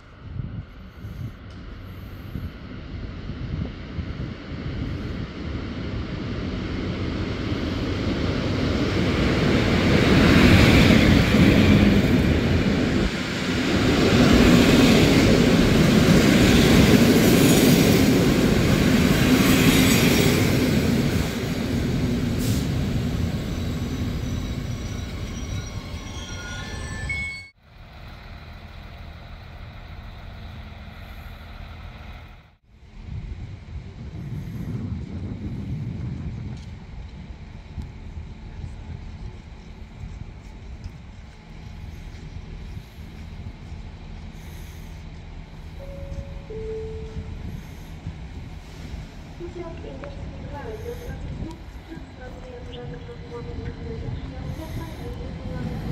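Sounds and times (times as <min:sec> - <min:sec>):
train wheels rumbling on rails: 0:00.0 - 0:55.9
high brake squealing: 0:23.3 - 0:27.6
quiet steady rumble: 0:27.7 - 0:55.8.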